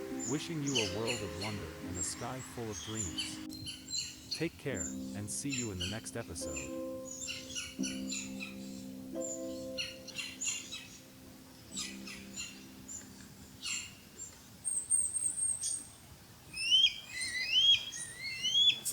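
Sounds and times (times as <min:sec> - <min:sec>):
rising whistled bird notes: 0:00.0 - 0:05.0, 0:16.6 - 0:18.9
thin high bird trill: 0:00.0 - 0:15.9
songbirds chirping: 0:00.0 - 0:18.9.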